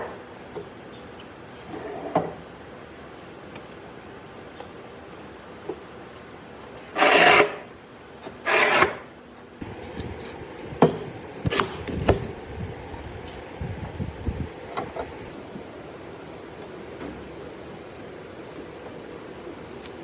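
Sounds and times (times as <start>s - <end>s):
hand tool scraping wood: 6.8s - 7.7s, 8.3s - 9.0s.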